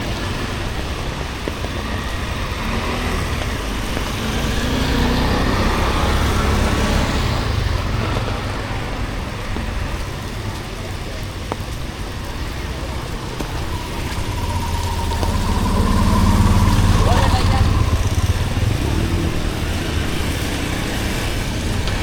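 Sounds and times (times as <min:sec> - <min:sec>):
street traffic noise: 0:00.0 - 0:22.0
vehicle passing on wet street: 0:00.0 - 0:22.0.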